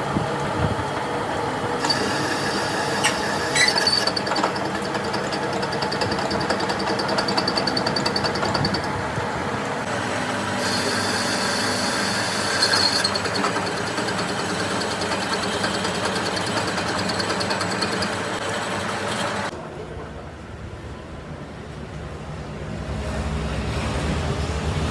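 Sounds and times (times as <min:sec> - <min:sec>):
workshop machinery running: 0:00.0 - 0:24.9.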